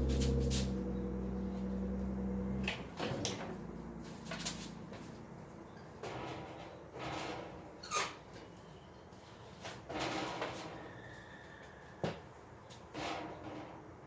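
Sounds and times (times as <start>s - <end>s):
low hum: 0.0s - 4.8s
knocks and clatters of parts: 9.6s - 10.9s.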